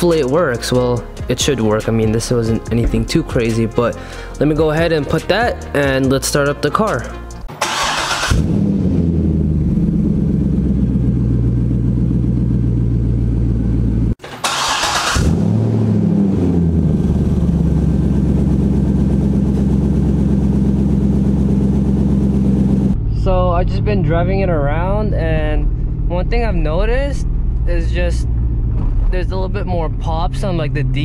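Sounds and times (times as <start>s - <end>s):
engine cranking and catching: 7.4s - 8.7s, 14.2s - 15.6s
engine idling: 7.6s - 31.0s.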